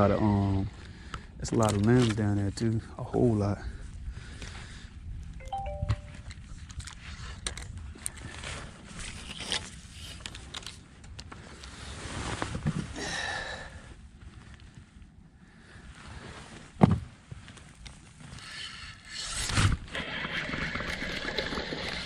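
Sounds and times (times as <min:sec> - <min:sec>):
handling clicks and scrapes: 0:06.6 - 0:12.9
rustling noise: 0:06.9 - 0:13.0, 0:14.1 - 0:18.4.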